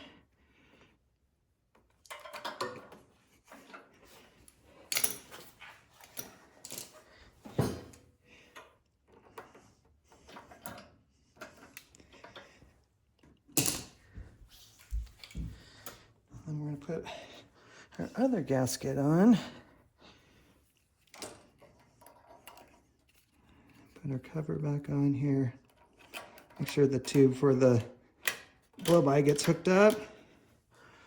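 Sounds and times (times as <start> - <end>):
small metal parts clinking: 4.8 - 7.0.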